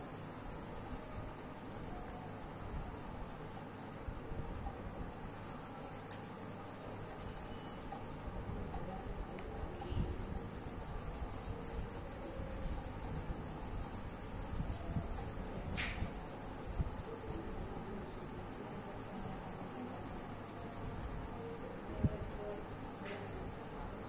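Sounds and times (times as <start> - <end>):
pencil shading on paper: 0.0 - 3.4, 5.2 - 8.2, 9.7 - 24.0
pencil tap: 15.7 - 16.0.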